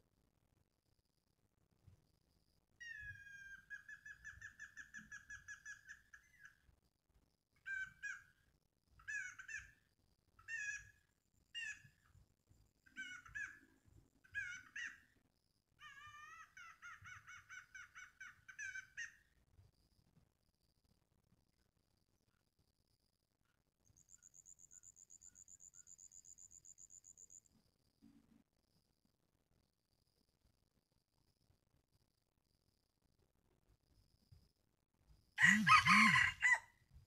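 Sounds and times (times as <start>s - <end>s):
faint high insect drone: 0.0s - 13.8s, 14.6s - 36.6s.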